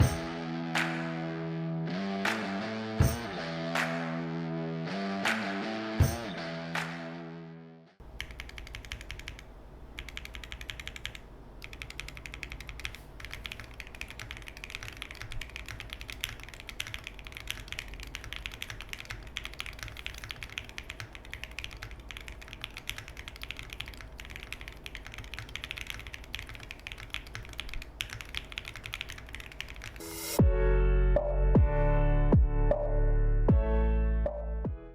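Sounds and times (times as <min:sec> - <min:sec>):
mechanical keyboard typing: 0:08.0 - 0:30.0.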